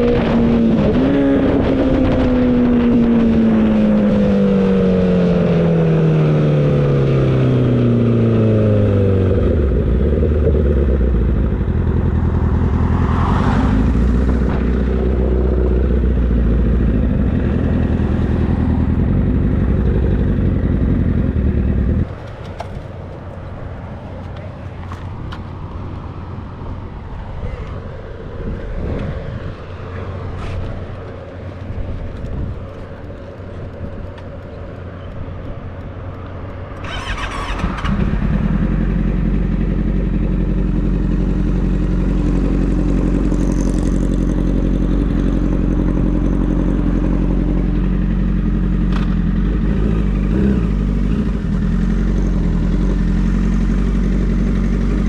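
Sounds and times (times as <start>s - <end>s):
mixed vehicle noise: 0.0s - 55.0s
motorcycle engine running: 7.7s - 23.4s, 36.6s - 55.0s.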